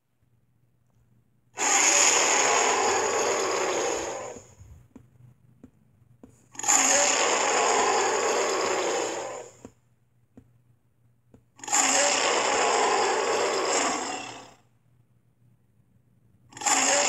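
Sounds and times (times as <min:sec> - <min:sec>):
dinosaur roaring: 0:01.6 - 0:04.5, 0:06.6 - 0:09.6, 0:11.6 - 0:14.6, 0:16.6 - 0:17.0.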